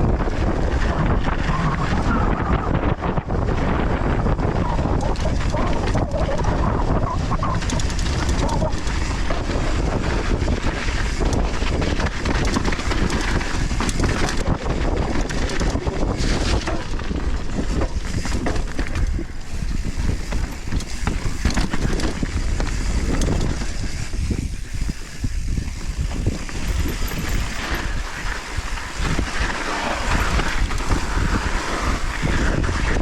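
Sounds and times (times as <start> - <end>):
bike rattling and knocking: 0.0 - 33.0
wind buffeting microphone: 0.0 - 33.0
tyres on loose soil: 3.3 - 33.0.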